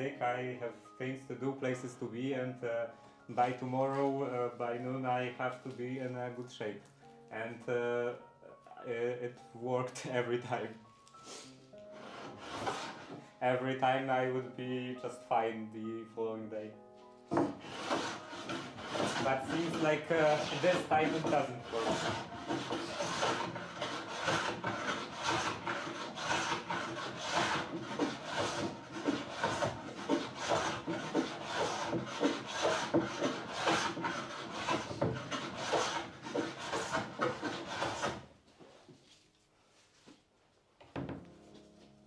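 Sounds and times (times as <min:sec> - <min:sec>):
hand rubbing strokes on wood: 0:17.4 - 0:40.2.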